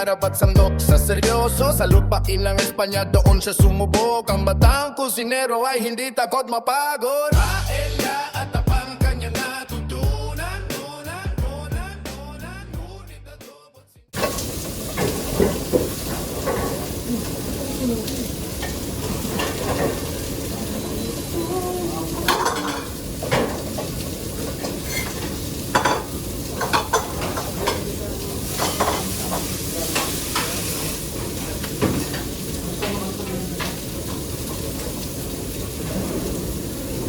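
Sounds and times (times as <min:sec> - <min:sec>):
food frying in a pan: 0:14.2 - 0:37.0.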